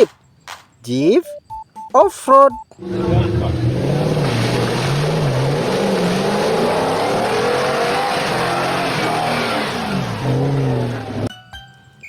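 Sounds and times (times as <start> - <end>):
car engine revving: 2.8 - 11.3.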